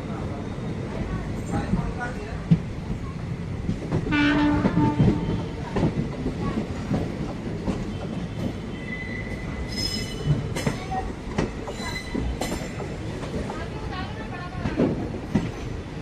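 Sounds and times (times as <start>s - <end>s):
train horn blast: 4.1s - 5.6s
train wheels clicking over rail joints: 9.7s - 13.6s.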